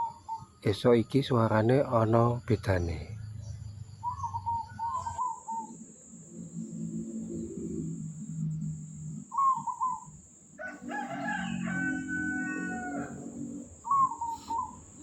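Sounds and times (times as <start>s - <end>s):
bird long call: 4.0s - 5.8s, 9.3s - 15.0s
dove cooing: 4.0s - 5.8s, 7.3s - 15.0s.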